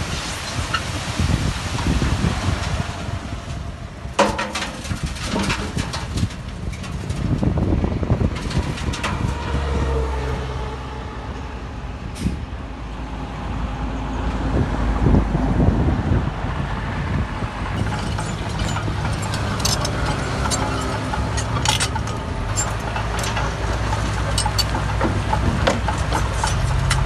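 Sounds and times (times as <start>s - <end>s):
diesel machinery rumbling: 0.0s - 27.0s
sharp metal clanks and knocks: 4.2s - 7.2s, 17.8s - 27.0s.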